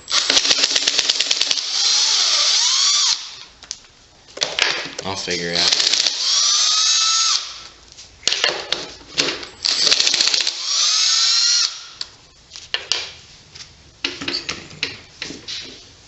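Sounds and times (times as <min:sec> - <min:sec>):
power drill whine: 0:00.0 - 0:03.5, 0:05.7 - 0:07.7, 0:09.6 - 0:12.0.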